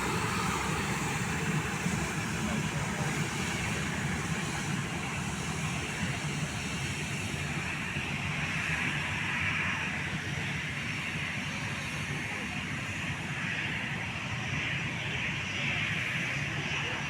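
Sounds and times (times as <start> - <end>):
jet airliner engines running: 0.0 - 17.0.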